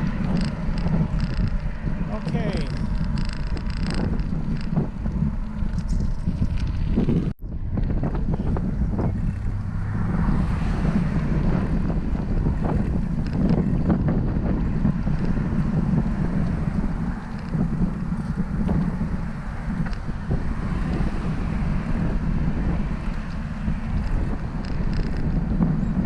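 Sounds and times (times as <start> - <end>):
road noise: 0.0 - 26.0
wind buffeting microphone: 0.0 - 26.0.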